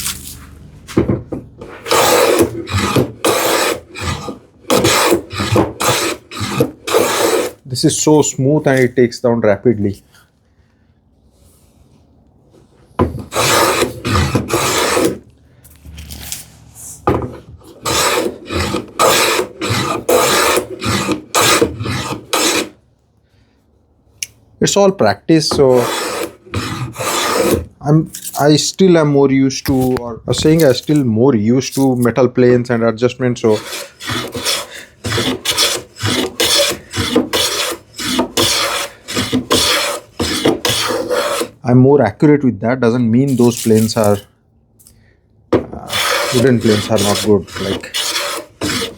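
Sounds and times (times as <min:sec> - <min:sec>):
hand plane rasping on wood: 0:01.6 - 0:07.6, 0:13.1 - 0:15.2, 0:17.6 - 0:22.8, 0:25.5 - 0:27.7, 0:33.4 - 0:41.6, 0:45.6 - 0:48.9.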